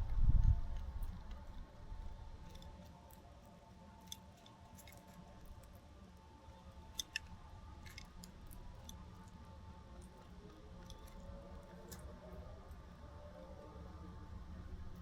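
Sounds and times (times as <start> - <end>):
faint background hum: 0.0 - 15.0.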